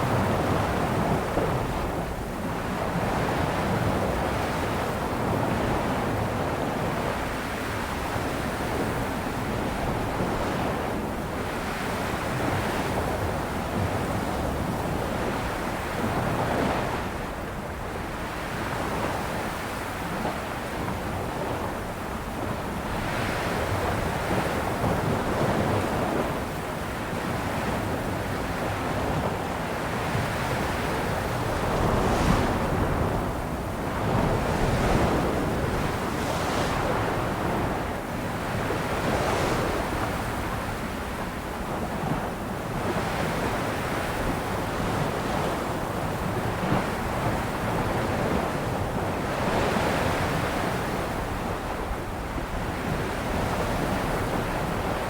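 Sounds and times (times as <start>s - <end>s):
wind buffeting microphone: 0.0s - 55.0s
sea waves breaking on shore: 15.2s - 55.0s.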